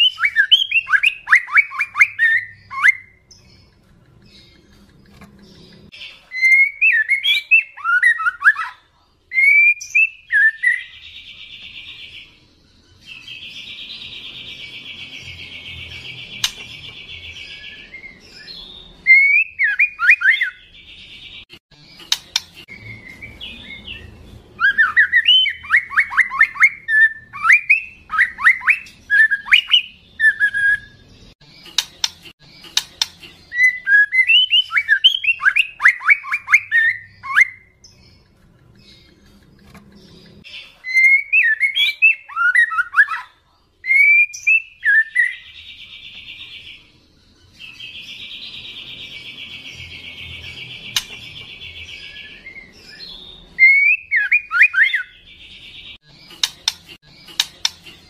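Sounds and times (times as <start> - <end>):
bird whistled phrases: 0.0 - 3.3, 6.3 - 10.9, 19.0 - 20.6, 24.6 - 31.0, 33.5 - 37.8, 40.8 - 45.4, 52.0 - 55.2.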